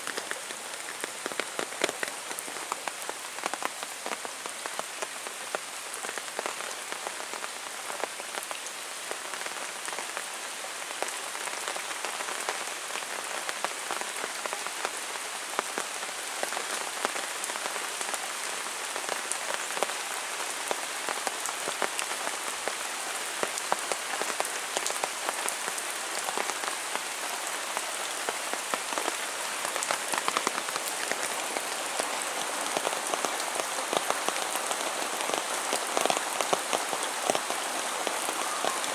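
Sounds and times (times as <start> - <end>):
raindrops clicking close by: 0.0 - 10.0
heavy rain falling: 0.0 - 38.9.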